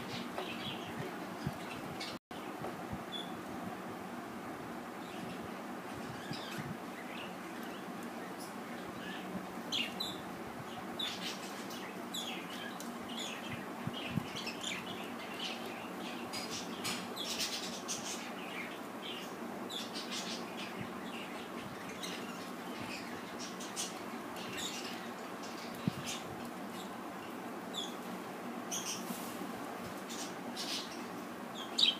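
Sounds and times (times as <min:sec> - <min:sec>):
steady background hum: 0:00.0 - 0:31.9.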